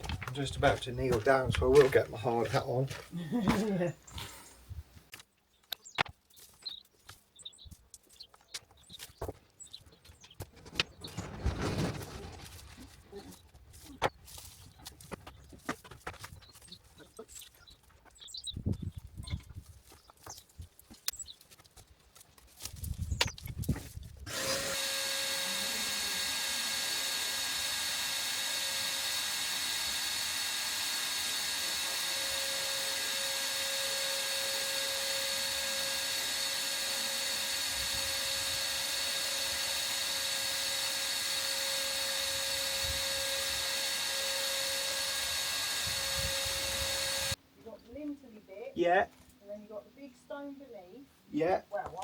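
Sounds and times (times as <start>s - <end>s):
power tool motor running: 24.2s - 47.4s.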